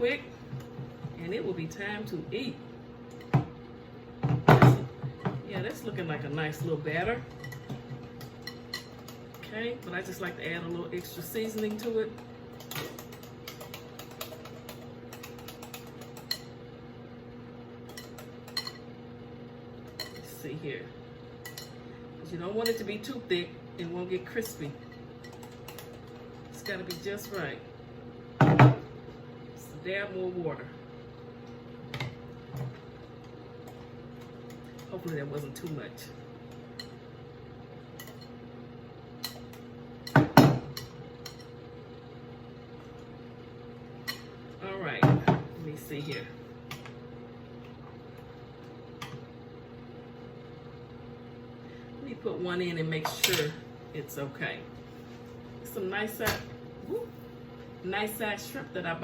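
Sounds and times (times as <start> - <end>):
electrical hum: 0.0 - 59.0
utensil clinking against a bowl: 4.5 - 16.5, 17.8 - 18.9, 19.8 - 20.3, 21.4 - 21.8, 24.2 - 27.5, 38.0 - 38.4, 39.2 - 41.6.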